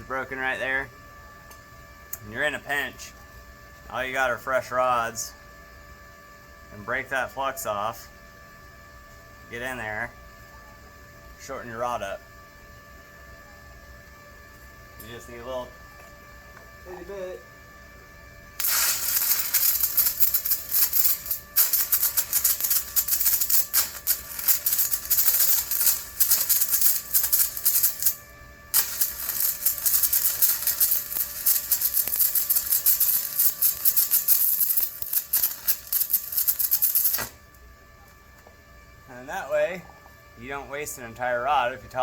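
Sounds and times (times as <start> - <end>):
welding arc crackling: 18.6 - 37.4.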